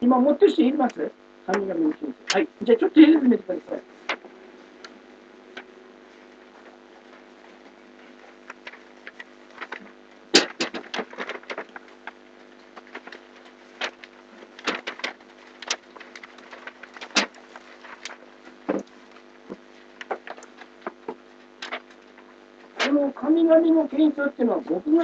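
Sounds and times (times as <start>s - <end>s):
low electrical hum: 0.0s - 25.0s
clicks and knocks of objects handled: 8.5s - 22.2s.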